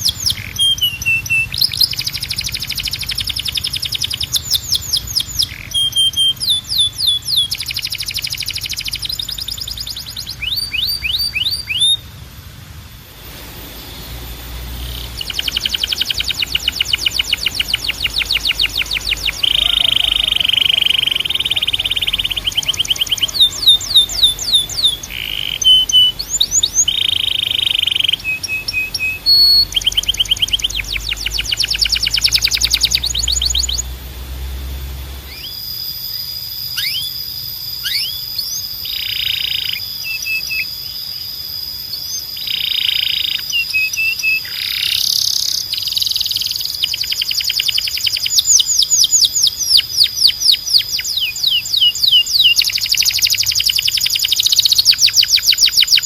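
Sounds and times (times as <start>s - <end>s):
canary singing trills: 0.0s - 12.2s, 13.2s - 56.0s
steady high tone: 12.9s - 44.2s.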